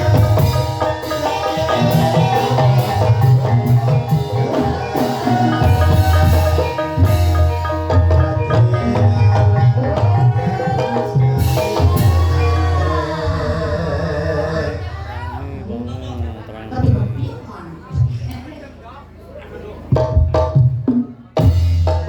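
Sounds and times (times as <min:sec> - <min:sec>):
mallet-struck bars and gongs: 0:00.0 - 0:14.1
deep drumming: 0:00.0 - 0:17.3.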